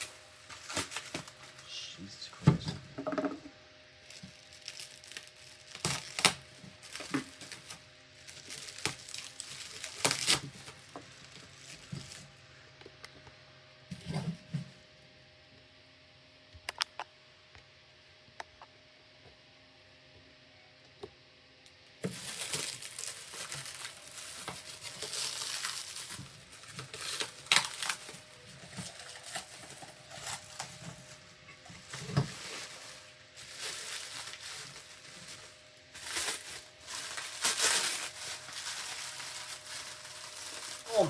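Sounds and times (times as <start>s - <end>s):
plastic wrap crinkling and tearing: 0.0s - 1.7s, 4.0s - 12.4s, 22.0s - 41.0s.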